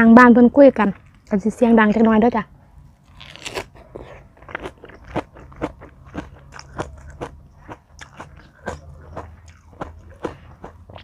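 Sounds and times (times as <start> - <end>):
person chewing crunchy food: 3.0 - 11.0.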